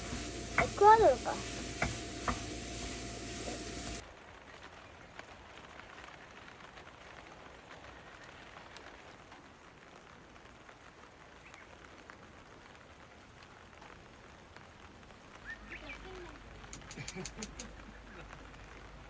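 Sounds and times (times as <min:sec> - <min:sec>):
steady rain falling: 0:00.0 - 0:19.0
raindrop ticks: 0:03.9 - 0:19.0.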